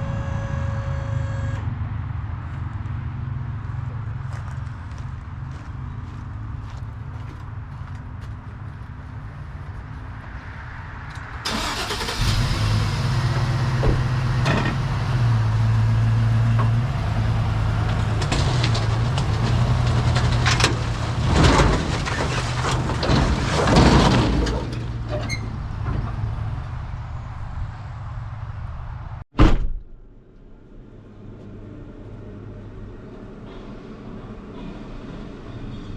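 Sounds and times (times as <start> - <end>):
rattling and scraping noise: 17.5 - 26.8.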